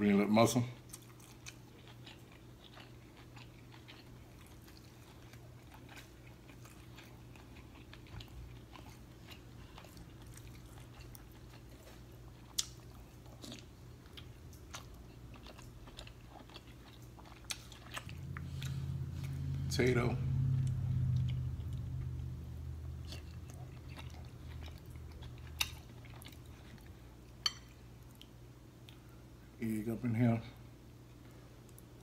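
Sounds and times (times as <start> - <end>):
low steady hum: 0.0 - 32.0
chewing and lip smacking: 0.8 - 19.5, 20.4 - 29.1.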